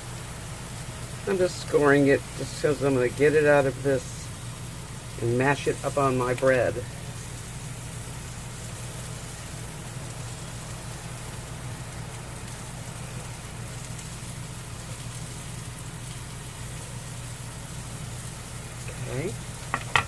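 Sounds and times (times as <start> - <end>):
steady low hum: 0.0 - 20.0
vegetables sizzling in a frying pan: 0.0 - 20.0.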